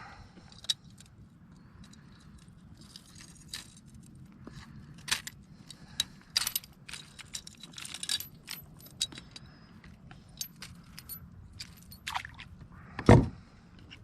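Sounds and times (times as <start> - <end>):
lure hooks jingling: 4.9 - 12.4.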